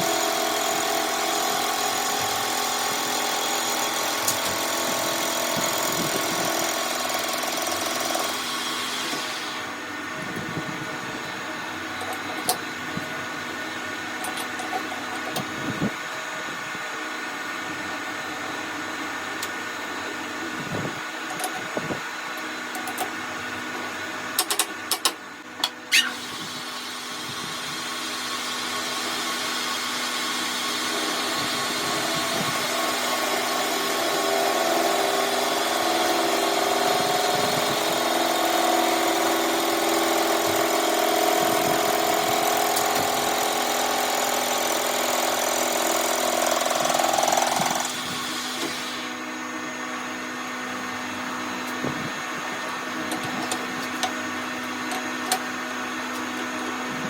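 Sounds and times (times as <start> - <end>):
machine tool running: 0.0 - 9.8, 25.9 - 49.5.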